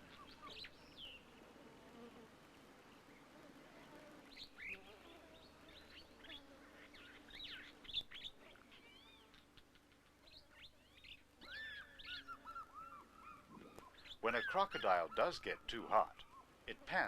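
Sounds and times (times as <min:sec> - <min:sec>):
repeated bird call notes: 0:05.7 - 0:16.6
birds chirping and whistling: 0:10.9 - 0:15.3.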